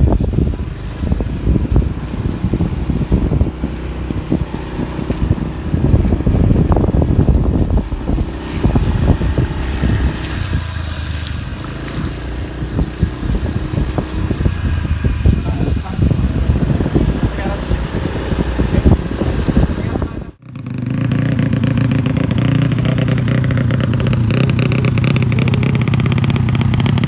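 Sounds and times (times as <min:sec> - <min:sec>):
wind buffeting on microphone: 0:00.0 - 0:20.4
single-cylinder engine running: 0:00.0 - 0:27.0.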